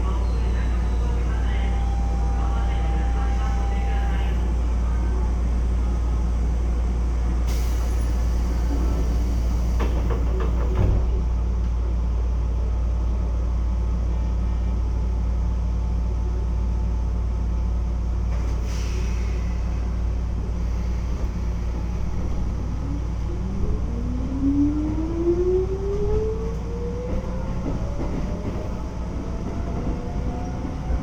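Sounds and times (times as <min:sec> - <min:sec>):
train wheels rumbling: 0:00.0 - 0:11.2, 0:18.3 - 0:31.0
rail joint clacks: 0:07.5 - 0:11.2, 0:26.0 - 0:31.0.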